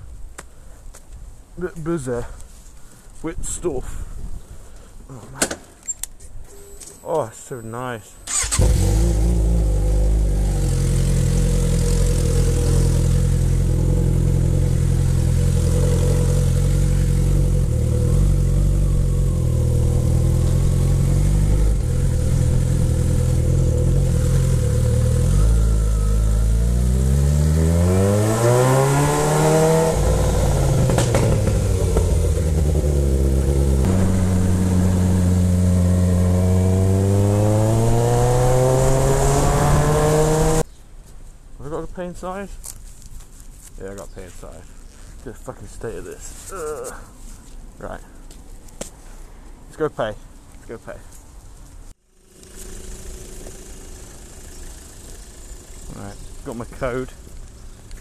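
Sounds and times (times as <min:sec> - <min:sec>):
motorcycle engine revving: 0:08.3 - 0:40.6, 0:52.1 - 0:56.5.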